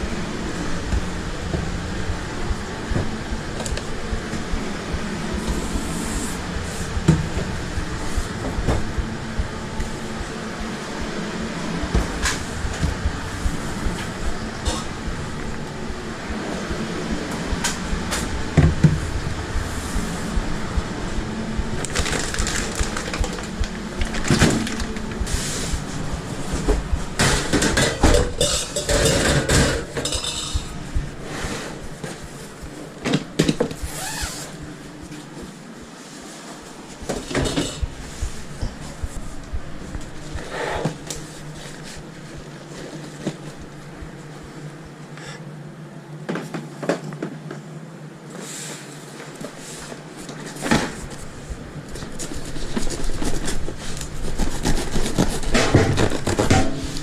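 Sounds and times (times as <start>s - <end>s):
steady low hum: 0.0s - 46.4s, 47.6s - 57.0s.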